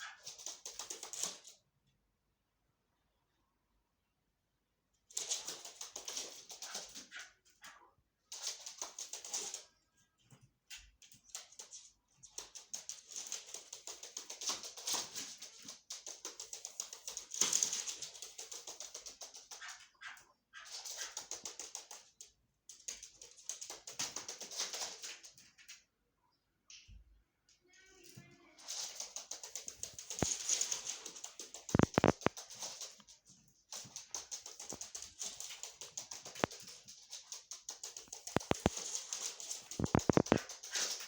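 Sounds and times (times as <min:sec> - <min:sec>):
partridge clicking chatter: 0:29.0 - 0:33.0, 0:34.4 - 0:41.0.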